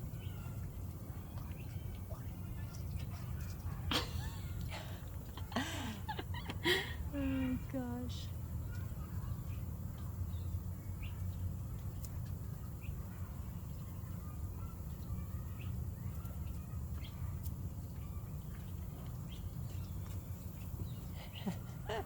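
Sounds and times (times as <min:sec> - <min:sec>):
faint bird chirps: 0:08.6 - 0:22.0.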